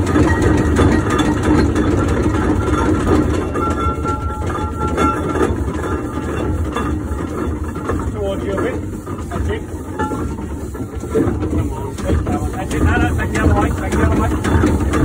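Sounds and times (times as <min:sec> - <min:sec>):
steam engine rumble: 0:00.0 - 0:15.0.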